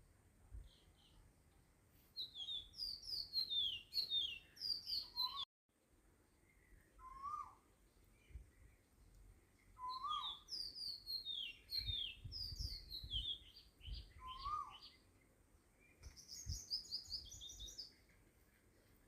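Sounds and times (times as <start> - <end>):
birds chirping: 2.2 - 5.5, 6.3 - 19.0
lower bird call: 2.2 - 5.5, 6.5 - 8.8, 9.8 - 15.0.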